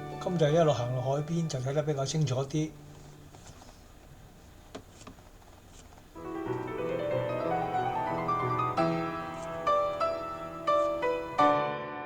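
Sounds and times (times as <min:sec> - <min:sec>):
piano music: 0:00.0 - 0:03.3, 0:06.2 - 0:12.0.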